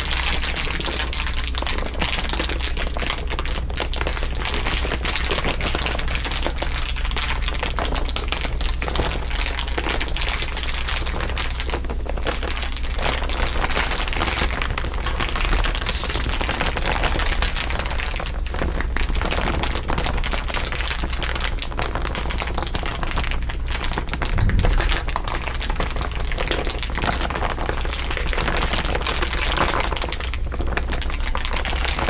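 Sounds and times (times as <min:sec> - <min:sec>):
material crinkling: 0:13.6 - 0:20.7
low hum: 0:24.2 - 0:26.2.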